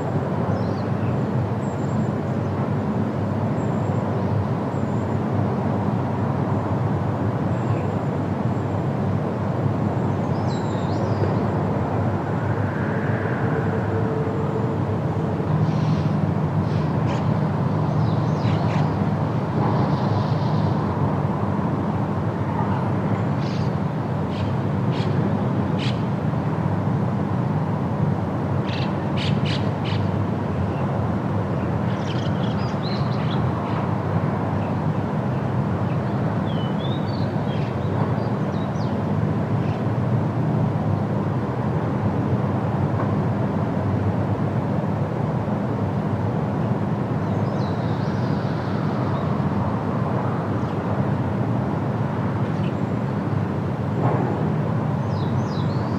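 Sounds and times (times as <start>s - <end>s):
low ambient rumble: 11.0s - 18.6s.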